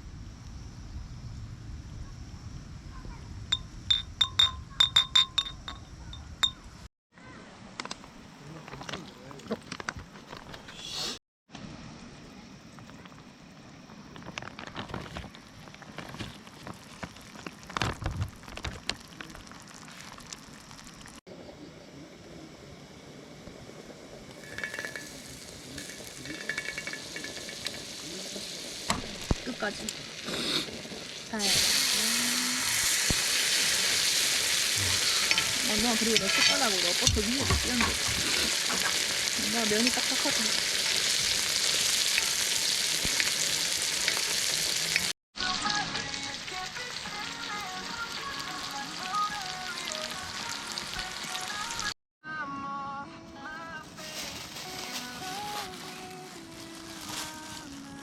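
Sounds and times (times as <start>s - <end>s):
light ringing clinks: 3.5s - 6.8s, 24.4s - 27.8s
food sizzling in a pan: 16.4s - 52.0s, 54.0s - 58.0s
utensil scraping a pan: 34.9s - 39.0s.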